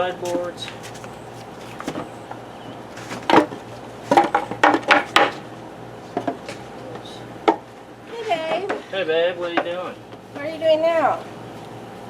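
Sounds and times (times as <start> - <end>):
wooden boards knocking: 3.1 - 5.4.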